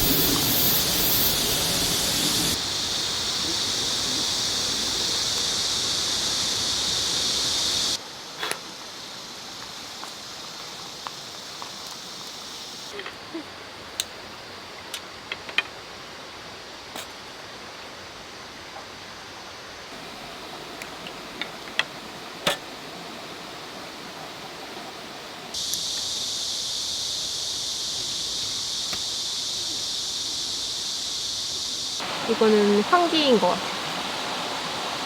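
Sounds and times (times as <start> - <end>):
stream rushing: 0.0 - 8.0, 19.9 - 25.6, 32.0 - 35.0.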